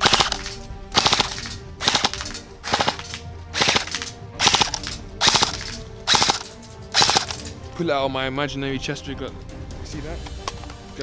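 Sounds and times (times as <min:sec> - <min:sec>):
airsoft rifle firing bursts: 0:00.0 - 0:07.5.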